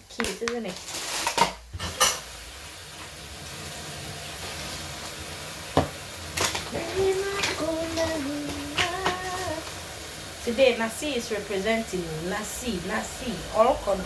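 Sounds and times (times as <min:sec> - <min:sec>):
tap water running into bowl: 0:02.9 - 0:10.4
woman humming: 0:06.7 - 0:09.7.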